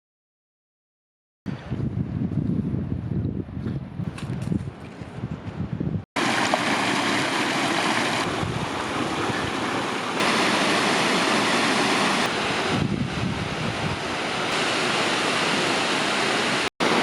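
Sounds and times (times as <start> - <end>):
wind buffeting microphone: 1.5 - 10.3, 11.6 - 14.6
waterfall rushing: 6.2 - 17.0.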